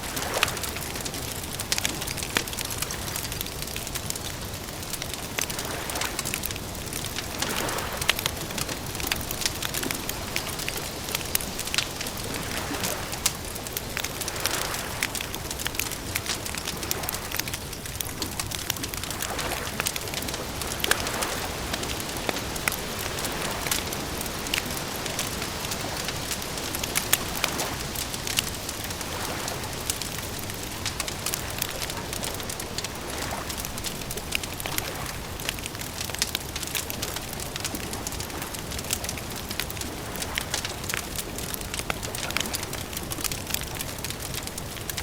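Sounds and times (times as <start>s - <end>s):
campfire crackling: 0.0s - 45.0s.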